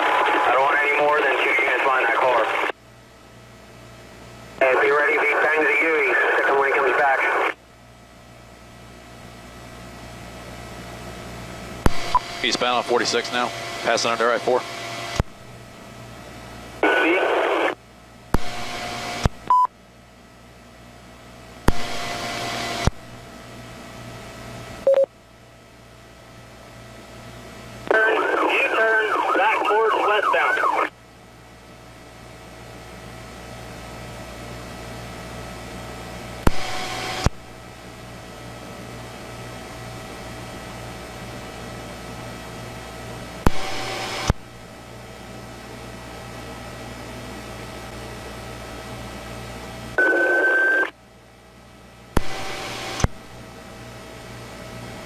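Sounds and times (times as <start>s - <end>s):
open-channel radio hiss: 0.0s - 2.8s, 4.6s - 7.6s, 11.9s - 15.2s, 16.8s - 17.8s, 27.8s - 31.0s
faint steady hum: 0.0s - 55.0s
short radio beeps: 19.5s - 19.7s, 24.9s - 25.1s, 50.0s - 50.9s.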